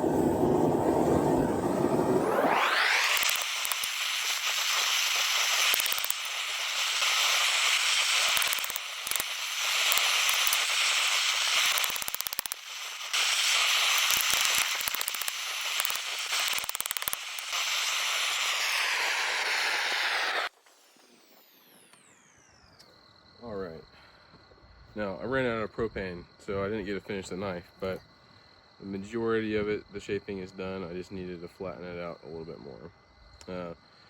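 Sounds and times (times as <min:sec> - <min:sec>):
forge burner hissing: 0:00.0 - 0:22.2
sharp crackling clicks: 0:02.2 - 0:19.6.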